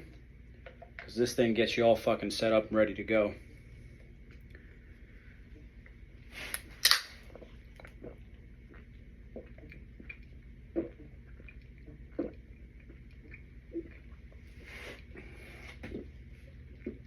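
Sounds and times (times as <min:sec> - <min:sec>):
can opening with fizz hiss: 0:06.4 - 0:07.2
gulping swallows: 0:07.3 - 0:17.0.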